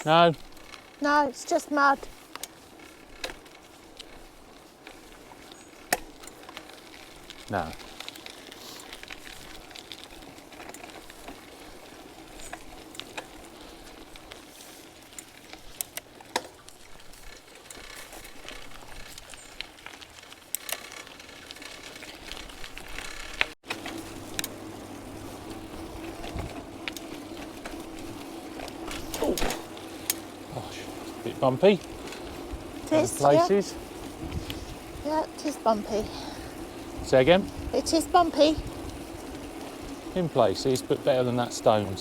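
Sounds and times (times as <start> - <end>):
bicycle rattles and clicks: 0.0 - 42.0
bicycle tyres on rough track: 0.0 - 42.0
wind noise: 31.9 - 35.1, 36.0 - 40.0.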